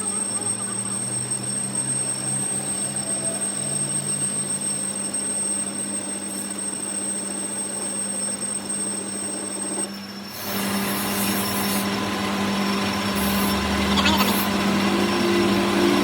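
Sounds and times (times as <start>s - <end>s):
thin high whine: 0.0s - 16.0s
machine hum: 10.6s - 16.0s.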